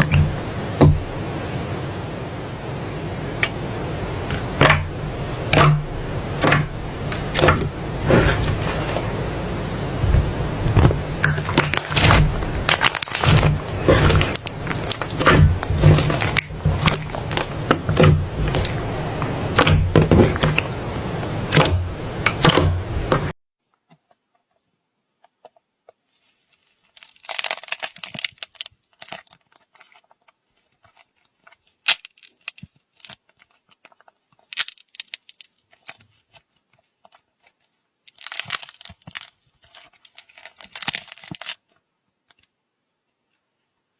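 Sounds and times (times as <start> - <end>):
slime crackling and popping: 0.0 - 1.4, 3.4 - 23.4, 26.4 - 42.4
low hum: 0.0 - 23.3.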